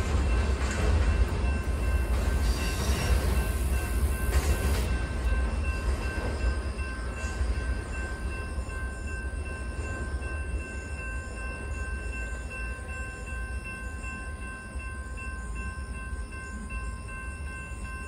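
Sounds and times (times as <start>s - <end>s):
crossing warning bells ringing: 0.0s - 18.0s
train rumbling on tracks: 0.0s - 18.0s.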